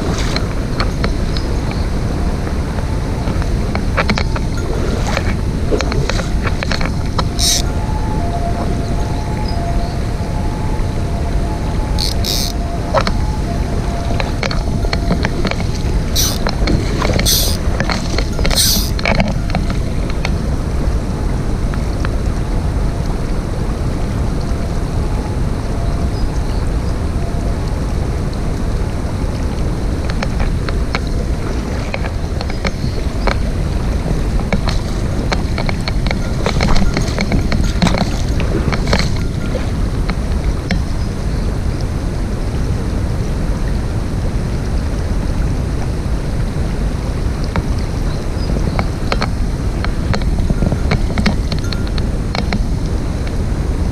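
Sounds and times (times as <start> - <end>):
mountain stream rushing: 0.0 - 10.3, 11.2 - 53.9
faint clicks: 2.8 - 7.7, 14.2 - 20.4
faint ticks: 5.8 - 7.7, 12.0 - 13.2, 14.2 - 20.4.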